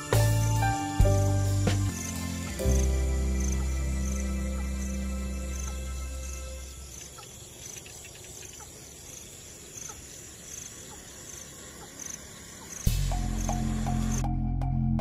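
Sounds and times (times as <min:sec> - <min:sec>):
insects chirping: 0:00.0 - 0:14.3
faint animal calls: 0:06.6 - 0:12.9.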